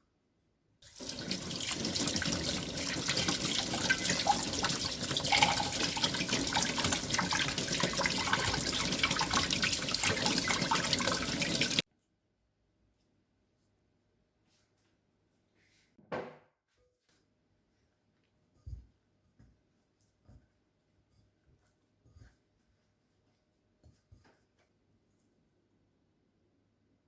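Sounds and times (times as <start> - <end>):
tap water running into sink: 0.8 - 11.8.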